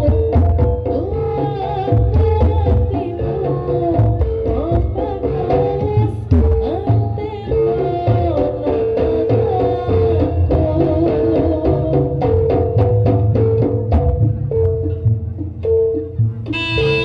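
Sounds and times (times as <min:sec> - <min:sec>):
sliding melody: 0:16.0 - 0:17.0
held note: 0:16.5 - 0:17.0.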